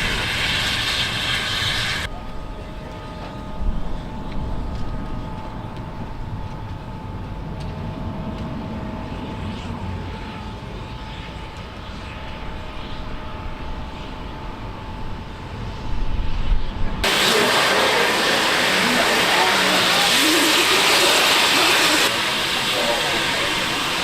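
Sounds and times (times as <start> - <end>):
loud rushing hiss: 0.0 - 2.1, 17.0 - 24.0
faint whining tones: 0.0 - 17.0
train running rumble: 0.0 - 24.0.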